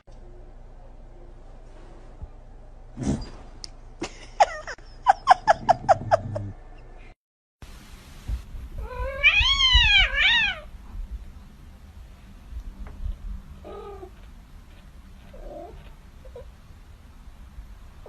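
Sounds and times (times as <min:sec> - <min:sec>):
cat meowing: 0:08.8 - 0:10.7.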